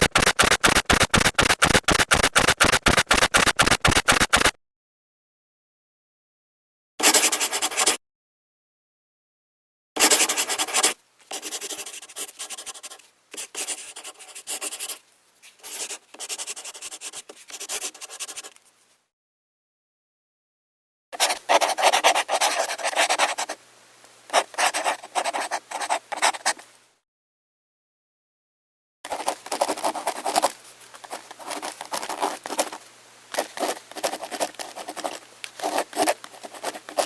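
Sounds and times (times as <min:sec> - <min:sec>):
computer keyboard typing: 0:00.0 - 0:04.6.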